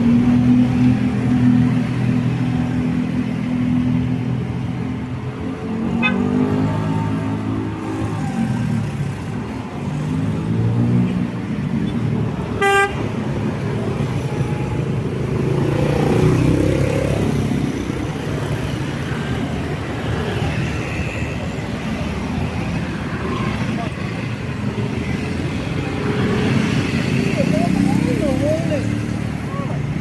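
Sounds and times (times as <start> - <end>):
vehicle engines passing: 0.0 - 30.0
car horn toot: 6.0 - 6.3, 12.6 - 13.0.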